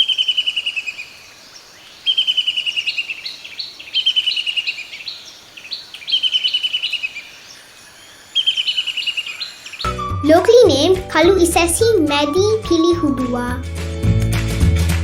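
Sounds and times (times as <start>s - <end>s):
bird chattering trill: 8.0s - 10.0s.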